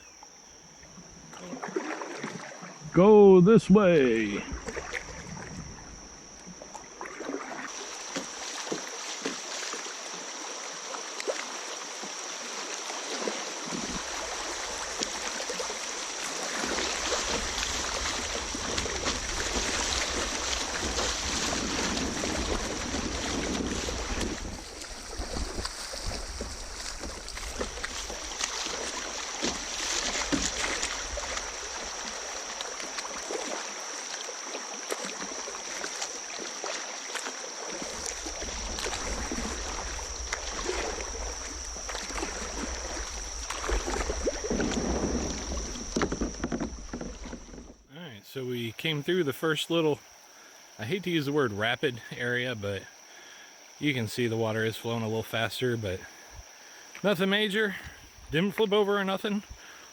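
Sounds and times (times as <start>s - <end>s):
kayak paddle splashing: 0.0s - 48.0s, 48.8s - 59.9s
creek water rushing: 7.1s - 47.6s
wind rumbling on microphone: 16.8s - 28.4s, 37.9s - 47.8s.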